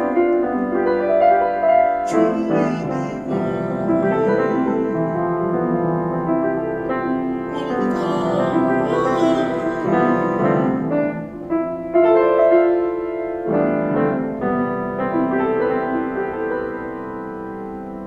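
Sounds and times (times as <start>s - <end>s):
piano chords: 0.0s - 18.0s.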